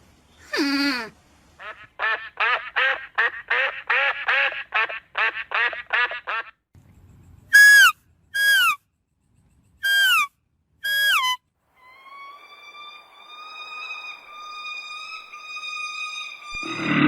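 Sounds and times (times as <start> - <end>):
duck quacks: 1.6 - 6.6.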